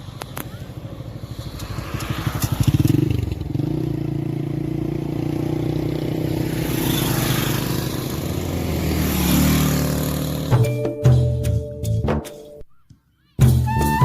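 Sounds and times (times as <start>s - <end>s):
motorcycle engine pulling away: 1.4s - 10.7s.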